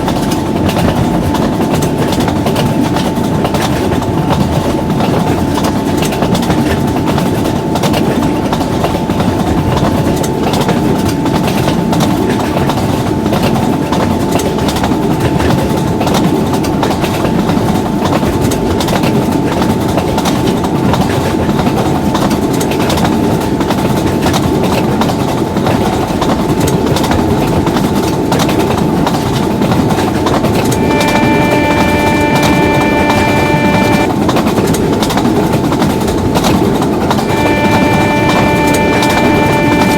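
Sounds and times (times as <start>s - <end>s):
chord of steady tones: 30.7s - 34.1s, 37.2s - 39.9s
thin steady tone: 30.8s - 34.1s, 37.2s - 39.9s.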